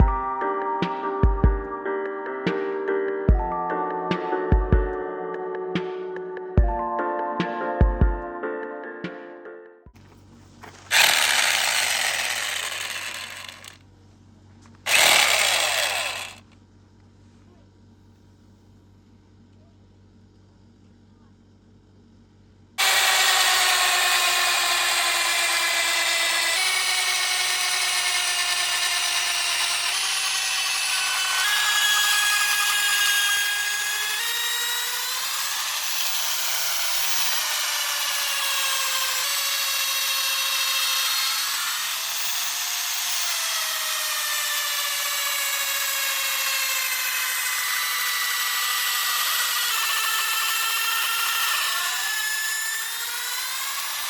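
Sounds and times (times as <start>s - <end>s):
power drill boring into wood: 10.7s - 13.8s, 14.9s - 16.5s, 22.8s - 54.0s.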